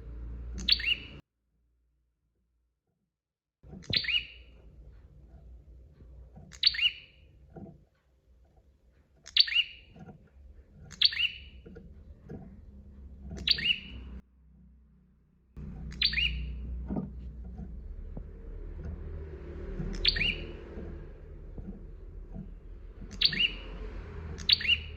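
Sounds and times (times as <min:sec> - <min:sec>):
low steady rumble: 0:00.0 - 0:01.2, 0:03.6 - 0:24.9
bird chirping: 0:00.4 - 0:01.2, 0:03.7 - 0:05.6, 0:06.2 - 0:07.8, 0:09.1 - 0:14.2, 0:15.6 - 0:24.9.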